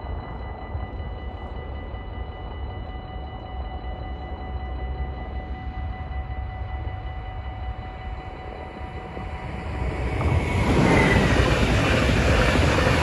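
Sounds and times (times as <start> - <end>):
faint steady tones: 0.0 - 13.0
train running over rails: 0.0 - 13.0
low rumble: 6.9 - 13.0.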